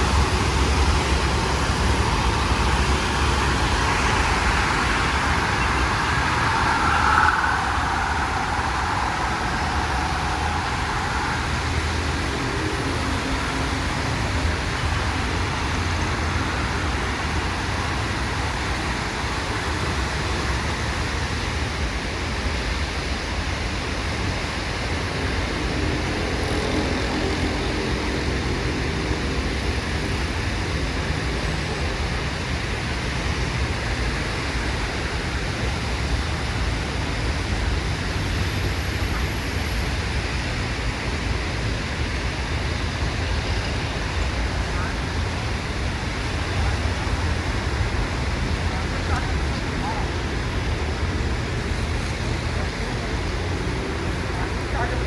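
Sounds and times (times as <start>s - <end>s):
wet road hiss: 0.0s - 21.3s
passing vehicles rumble: 0.0s - 55.0s
steady rain: 0.0s - 55.0s.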